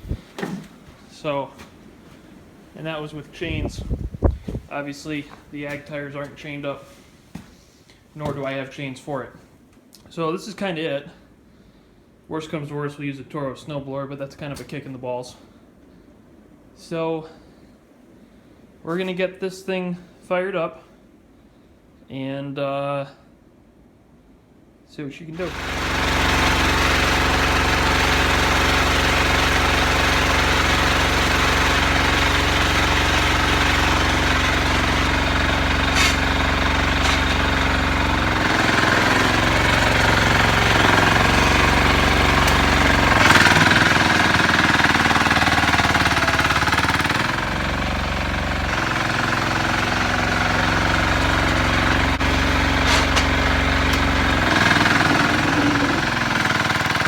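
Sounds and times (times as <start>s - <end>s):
garden tractor engine running: 0.0s - 1.7s, 2.7s - 7.4s, 25.4s - 57.0s.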